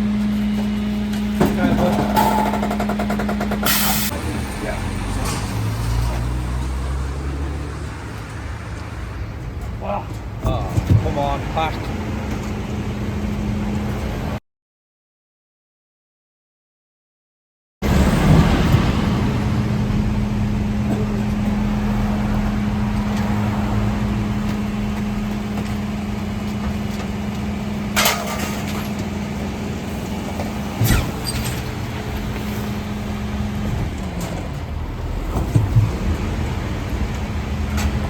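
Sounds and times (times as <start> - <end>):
truck engine humming: 0.0 - 10.4, 11.0 - 14.4, 17.8 - 38.0
sharp bangs: 30.8 - 31.8.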